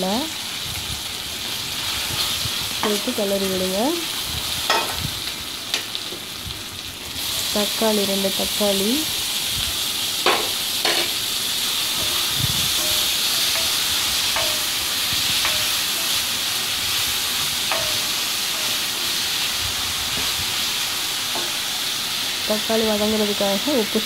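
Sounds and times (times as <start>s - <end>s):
tomatoes sizzling in hot oil: 0.0s - 24.0s
spatula knocking against pan: 14.4s - 14.7s, 17.7s - 18.7s.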